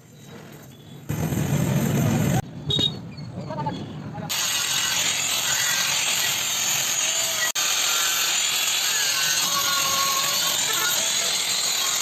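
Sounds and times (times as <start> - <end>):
harsh hiss of metal work: 4.3 - 12.0.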